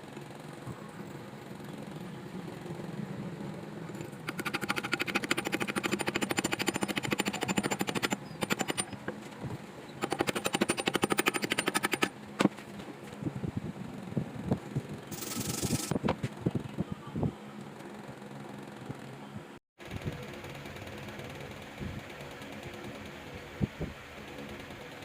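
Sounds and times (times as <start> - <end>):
rapid mechanical rattling: 3.8 - 9.2, 10.0 - 12.2, 15.0 - 16.0, 19.8 - 25.0.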